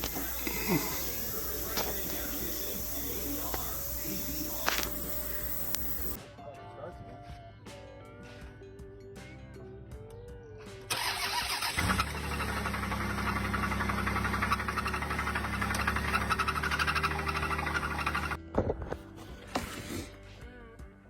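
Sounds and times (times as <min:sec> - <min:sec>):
faint background music: 0:00.0 - 0:12.1, 0:17.4 - 0:21.0
car engine starting and running: 0:10.9 - 0:18.4.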